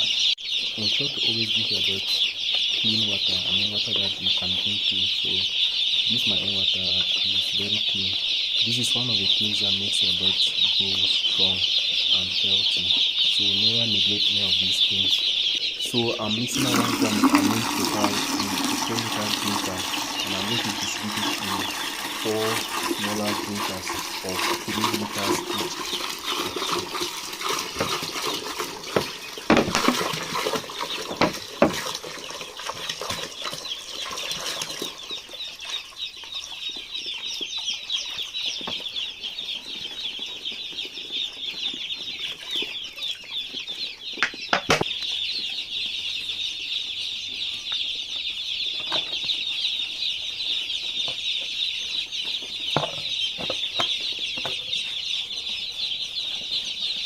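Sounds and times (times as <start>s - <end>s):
chicks peeping: 0.0s - 57.0s
sharp knocks: 44.2s - 44.9s.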